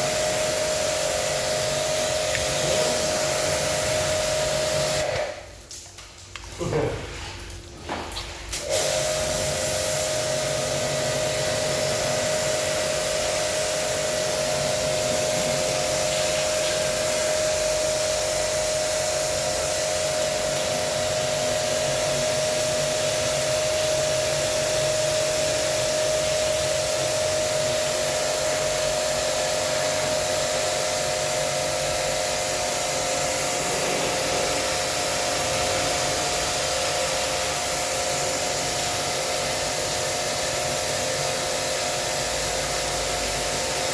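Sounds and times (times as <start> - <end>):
water spray hissing: 0.0 - 5.6, 8.5 - 43.9
pressure washer pump whine: 0.0 - 5.8, 7.9 - 43.9.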